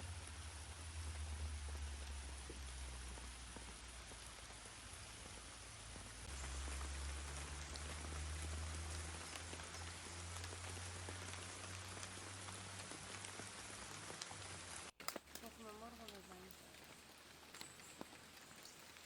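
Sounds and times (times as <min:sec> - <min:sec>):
steady rain falling: 0:00.0 - 0:19.0
drops ticking on surfaces: 0:15.0 - 0:19.0.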